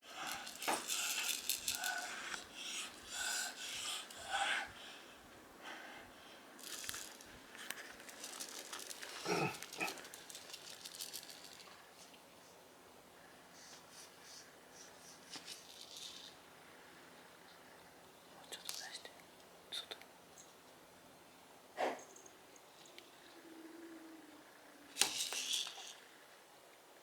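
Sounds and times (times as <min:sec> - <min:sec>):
cat toy rustling and crinkling: 0:00.2 - 0:02.3, 0:06.6 - 0:12.1.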